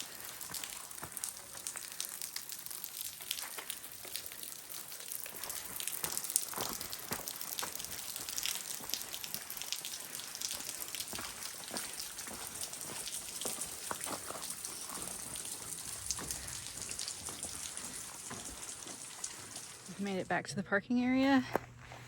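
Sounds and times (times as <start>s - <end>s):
footsteps on dirt and leaves: 5.3s - 8.1s, 11.1s - 20.1s, 21.2s - 22.0s.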